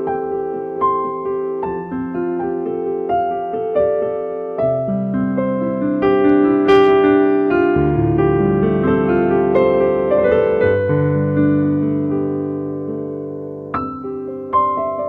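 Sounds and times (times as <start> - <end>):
keyboard playing slow chords: 6.7 - 8.2.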